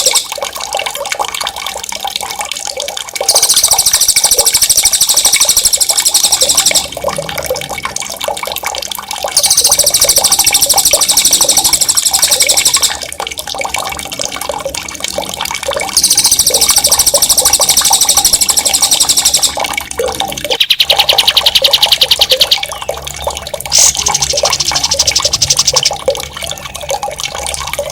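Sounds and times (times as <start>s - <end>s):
running water bubbling: 0.0s - 27.9s
songbird rolling trill: 3.3s - 6.9s, 9.4s - 12.9s, 16.0s - 19.6s.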